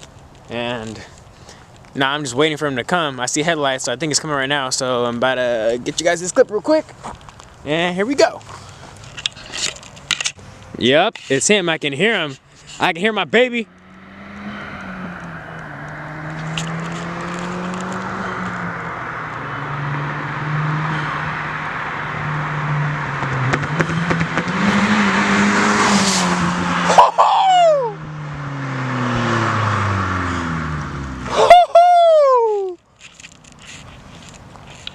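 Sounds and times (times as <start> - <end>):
raspy car exhaust passing by: 13.6 - 32.2.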